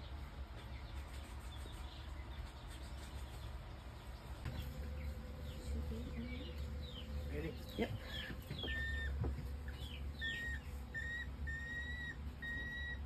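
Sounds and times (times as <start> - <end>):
low steady hum: 0.0 - 13.0
faint bird chirps: 0.8 - 13.0
drawn-out bird call: 4.8 - 13.0.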